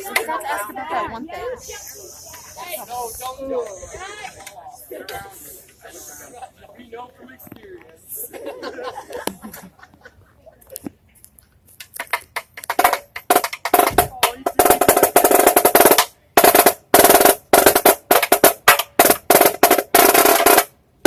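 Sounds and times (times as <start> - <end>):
marching snare drum rolls: 12.4 - 20.7.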